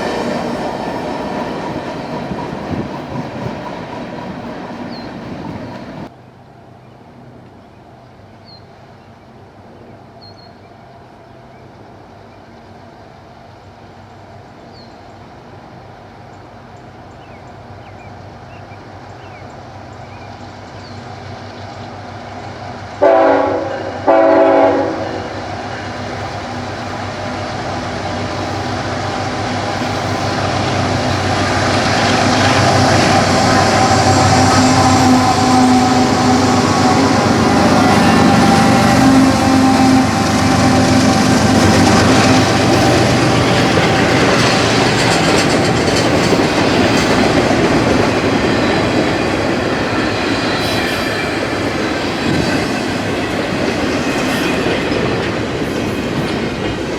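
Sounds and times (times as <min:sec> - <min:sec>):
freight train engine and wheels: 0:00.0 - 0:56.9
locomotive air horn blasts: 0:23.0 - 0:25.4, 0:32.7 - 0:44.3.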